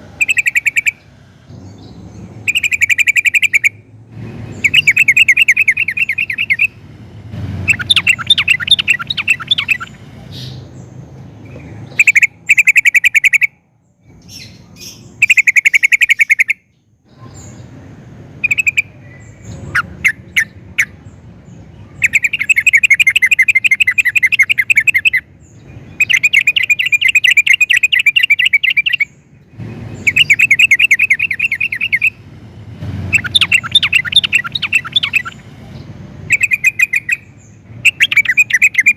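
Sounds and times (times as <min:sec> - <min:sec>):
bulbul singing bubbly chatter: 0:00.2 - 0:01.0, 0:02.4 - 0:03.8, 0:04.6 - 0:06.8, 0:07.7 - 0:10.0, 0:11.9 - 0:13.6, 0:22.0 - 0:25.2, 0:26.0 - 0:29.2, 0:30.0 - 0:32.2, 0:33.1 - 0:35.5, 0:36.2 - 0:38.9.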